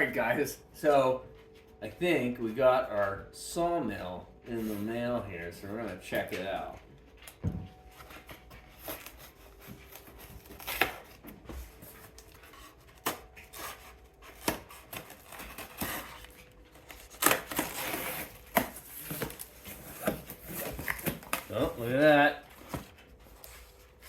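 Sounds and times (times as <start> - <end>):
tape and cardboard tearing: 8.8 - 23.5
cardboard box being cut: 13.0 - 16.3, 16.9 - 22.8.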